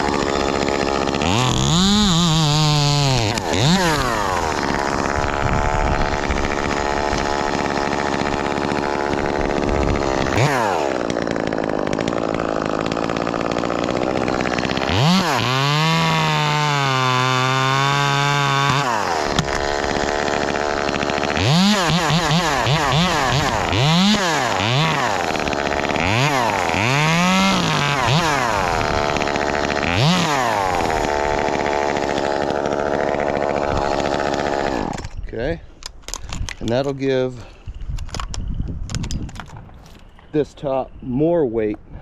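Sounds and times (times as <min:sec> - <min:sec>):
chainsaw revving: 0:00.0 - 0:35.3.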